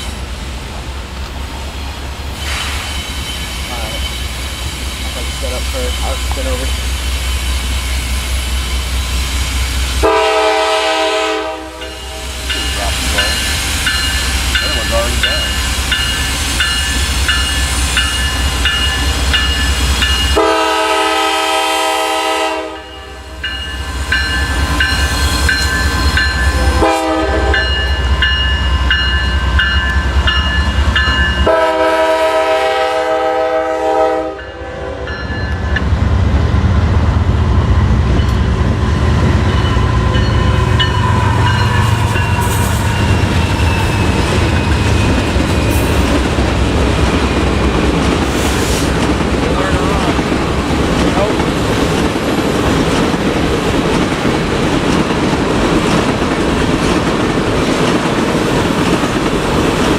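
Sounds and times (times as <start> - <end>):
freight train rumbling past: 0.0 - 59.9
locomotive bell dinging: 2.9 - 7.6, 11.7 - 20.7, 22.7 - 31.8, 34.3 - 36.0, 38.0 - 46.4
locomotive air horn: 10.0 - 12.4, 20.4 - 23.3, 26.6 - 27.7, 31.4 - 35.1.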